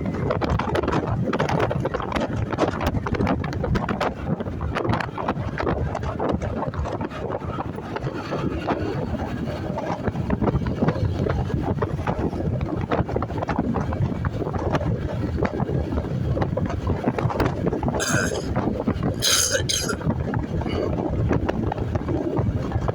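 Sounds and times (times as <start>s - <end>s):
motorcycle engine and road noise: 0.0s - 18.0s
wind buffeting microphone: 0.0s - 22.9s.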